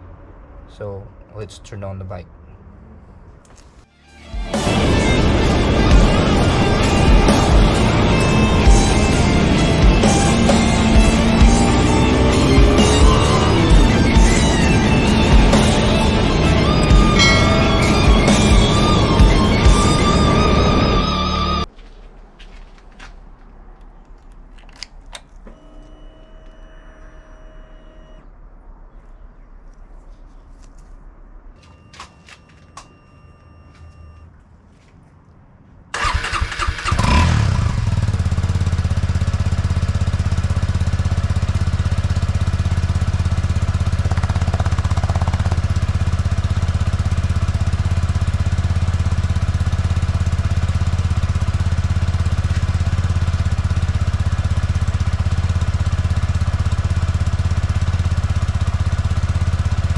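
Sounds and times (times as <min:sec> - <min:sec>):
motorcycle starter cranking: 0:36.0 - 0:38.0
motorcycle engine idling: 0:36.0 - 0:59.9.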